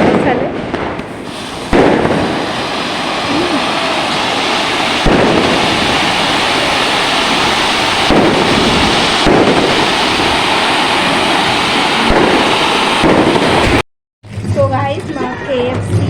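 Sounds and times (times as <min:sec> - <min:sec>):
fireworks bangs: 0:00.0 - 0:13.8
fireworks crackling hiss: 0:01.0 - 0:13.8.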